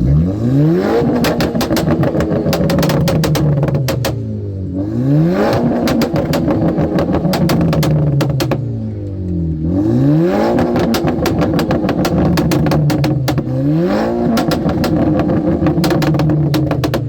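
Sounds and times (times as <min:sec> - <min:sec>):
car engine revving: 0:00.0 - 0:17.0
exhaust pops crackling: 0:01.0 - 0:04.3, 0:05.4 - 0:09.7, 0:10.4 - 0:17.0.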